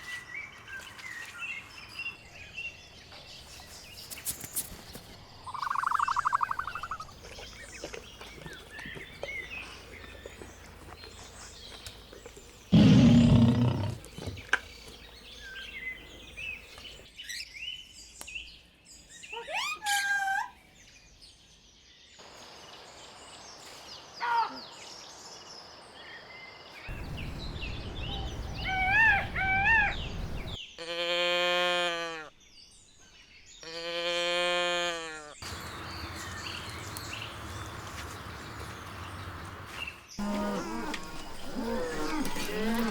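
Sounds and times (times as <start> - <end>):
bird chirps: 5.4 - 10.5
long bleats: 30.8 - 32.3.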